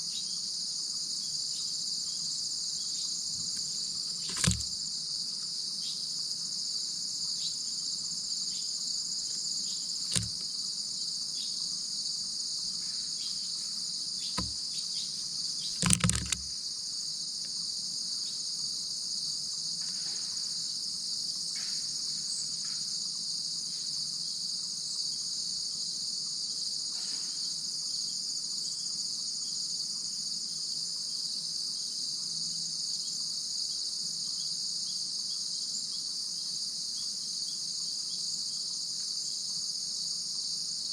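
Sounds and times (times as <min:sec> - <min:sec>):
crickets and insects chirring: 0:00.0 - 0:40.9
sharp knocks: 0:10.1 - 0:10.4, 0:14.4 - 0:14.6.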